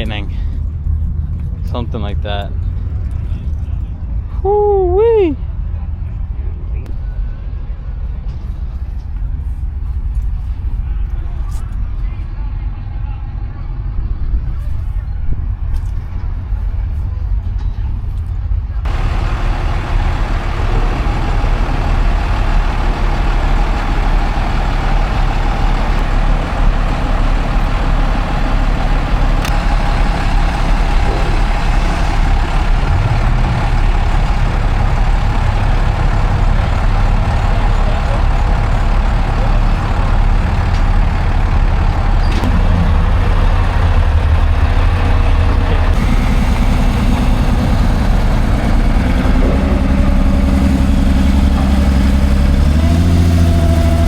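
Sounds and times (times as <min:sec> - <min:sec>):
vehicle engine running: 0:18.6 - 0:54.0.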